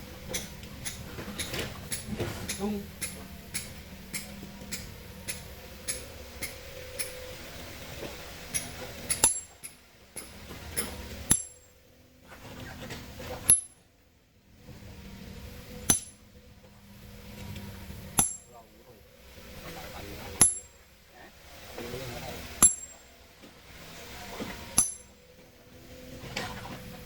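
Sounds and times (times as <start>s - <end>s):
hammer striking chisel on rock: 8.5s - 9.6s, 11.3s - 11.7s, 13.5s - 13.8s, 15.8s - 16.2s, 18.2s - 18.5s, 20.4s - 20.8s, 22.6s - 23.0s, 24.8s - 25.2s
hard hammer blows: 15.8s - 16.2s, 18.2s - 18.5s, 22.4s - 23.1s, 24.4s - 25.2s.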